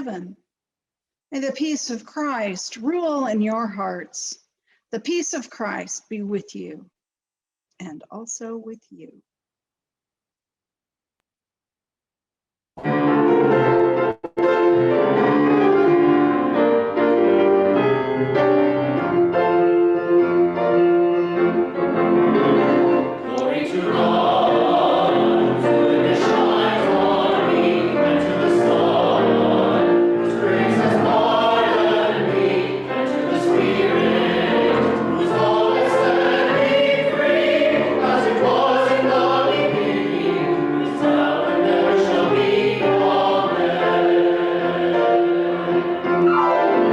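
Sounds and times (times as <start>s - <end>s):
sustained keyboard music: 12.8s - 46.9s
choir singing: 21.3s - 46.9s.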